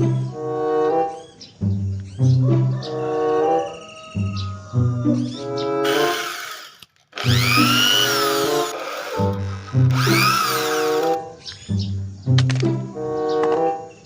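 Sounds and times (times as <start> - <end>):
background music with held notes: 0.0 - 5.8, 11.2 - 14.0
power tool whirring: 5.8 - 11.2.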